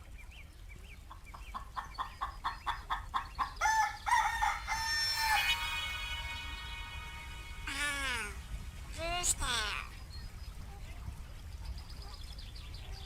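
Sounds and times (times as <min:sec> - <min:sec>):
rooster crowing: 0:03.6 - 0:05.6.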